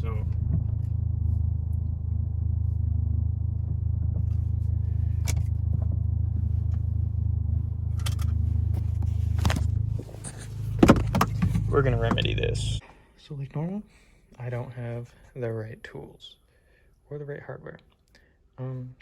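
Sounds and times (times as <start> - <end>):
car engine idling: 0.0 - 12.8.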